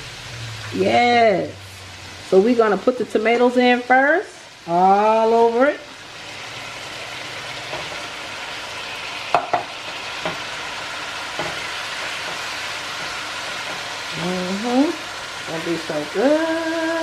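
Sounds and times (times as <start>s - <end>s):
chicken sizzling in a frying pan: 0.0s - 17.0s
utensil knocking on pan: 9.3s - 10.5s, 11.3s - 13.9s.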